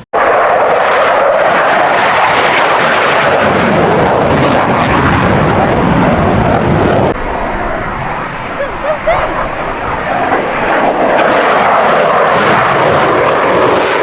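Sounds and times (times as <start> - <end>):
aircraft engine running: 7.2 - 11.5.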